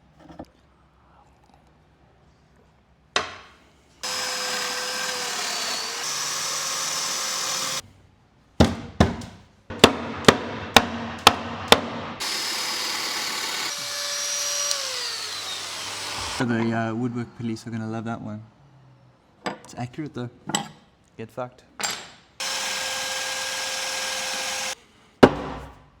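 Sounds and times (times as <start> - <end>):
power tool running: 4.0 - 7.8, 12.2 - 16.4, 22.4 - 24.8.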